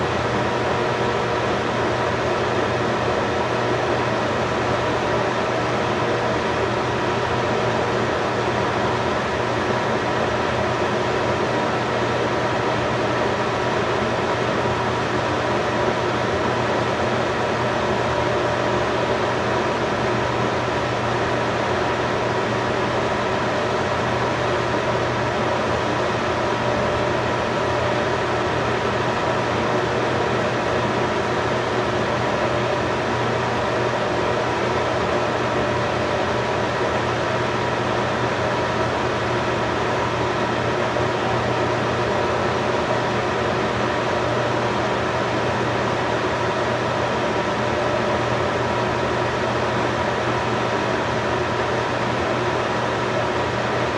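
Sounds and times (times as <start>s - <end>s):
mechanical hum with hiss: 0.0s - 53.9s.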